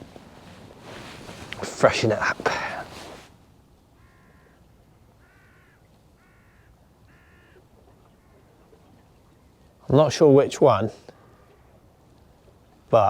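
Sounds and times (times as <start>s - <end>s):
crow cawing in the distance: 4.0s - 7.6s.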